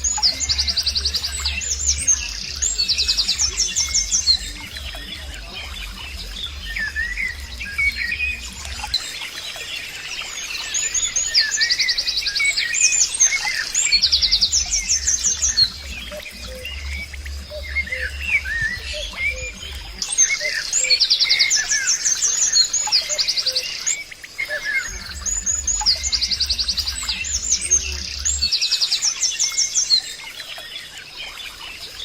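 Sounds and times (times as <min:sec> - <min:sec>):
low rhythmic throb: 0:00.0 - 0:23.4, 0:24.8 - 0:28.7
birds chirping and singing: 0:00.0 - 0:32.0.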